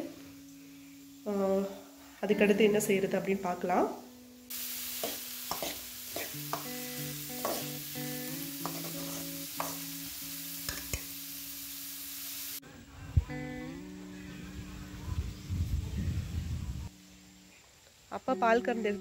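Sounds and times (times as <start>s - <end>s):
soft background music: 0.0s - 4.5s, 5.6s - 11.4s, 12.6s - 19.0s
vegetables sizzling in pan: 0.0s - 12.6s.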